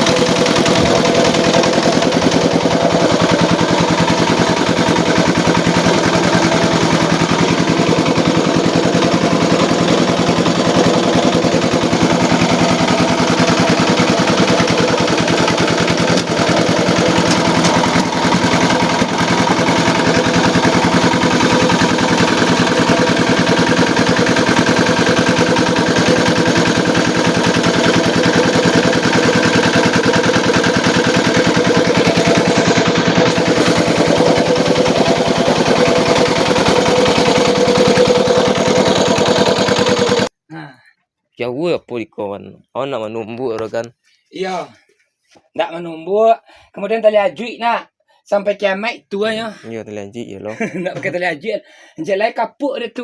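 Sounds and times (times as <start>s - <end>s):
small engine chugging: 0.0s - 40.3s.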